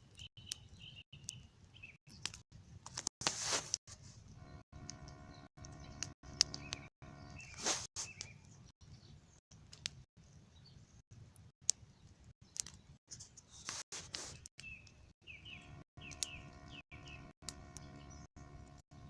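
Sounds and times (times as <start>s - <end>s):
birds chirping: 4.1s - 9.4s, 14.3s - 19.0s
campfire crackling and popping: 4.7s - 8.4s, 13.7s - 18.9s.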